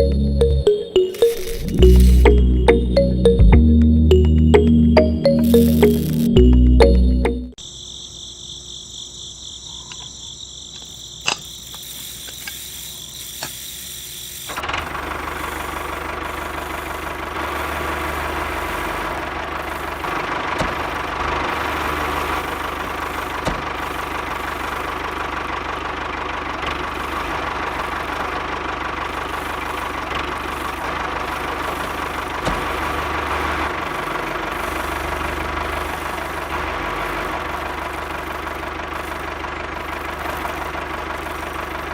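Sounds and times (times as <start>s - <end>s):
tractor engine running: 0.0s - 7.5s, 14.6s - 41.9s
high steady tones: 0.0s - 7.6s.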